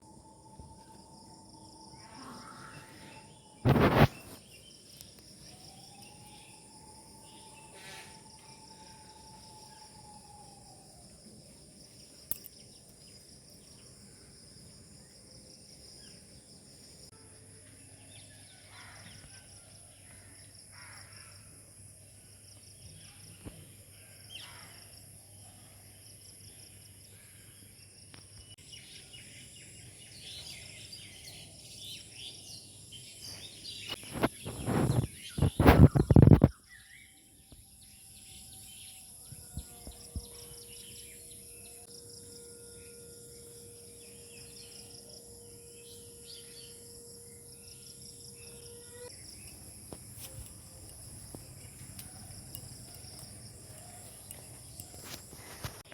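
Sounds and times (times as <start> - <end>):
high-pitched insect chorus: 0.0 - 55.9.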